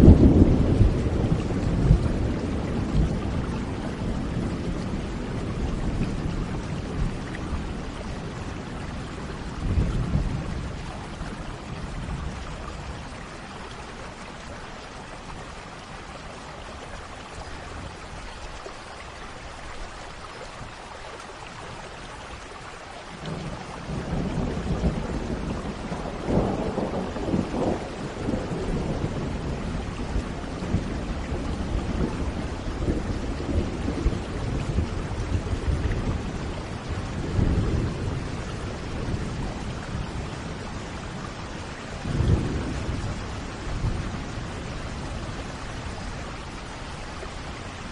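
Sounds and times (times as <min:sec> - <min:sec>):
rolling thunder: 0:00.0 - 0:13.2, 0:23.2 - 0:47.9
steady rain: 0:00.0 - 0:47.9.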